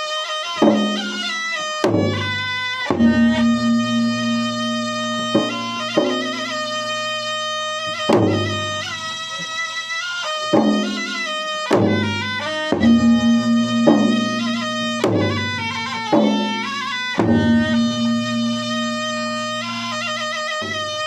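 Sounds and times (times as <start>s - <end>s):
drums beaten in steady pattern: 0.0s - 21.0s
nasal reed-pipe melody: 0.0s - 21.0s.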